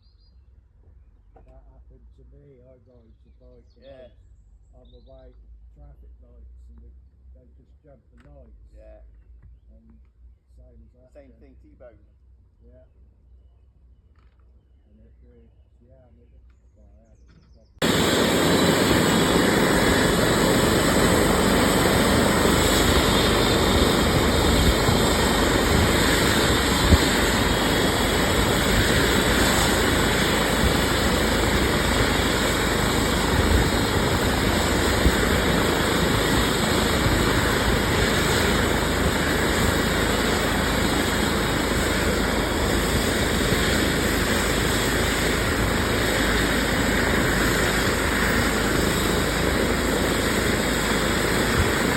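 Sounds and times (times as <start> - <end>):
helicopter running: 17.8 - 51.9.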